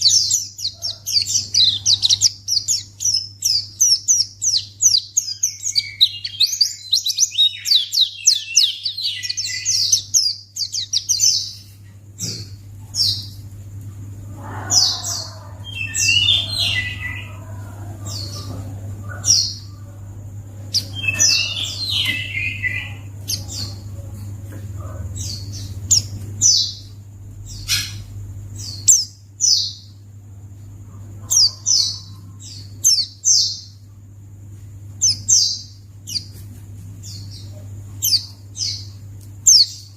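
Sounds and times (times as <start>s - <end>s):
bird chirping: 0.0s - 13.6s, 14.2s - 34.0s, 34.8s - 36.4s, 37.0s - 39.9s
steady low hum: 0.0s - 39.9s.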